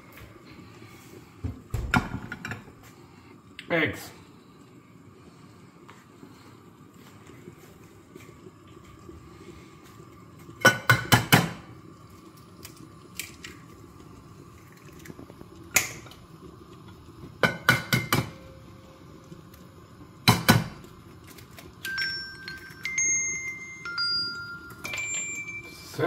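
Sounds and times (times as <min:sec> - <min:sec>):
phone alarm tones: 0:21.9 - 0:26.0.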